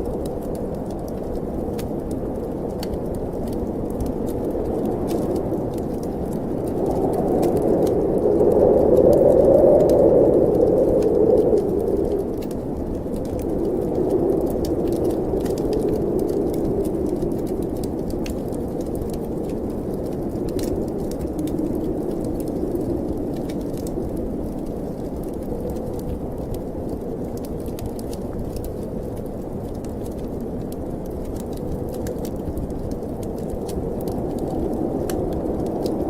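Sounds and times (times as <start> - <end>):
wood fire crackling: 0.0 - 36.0
snowstorm wind rushing: 1.8 - 28.1, 30.4 - 36.0.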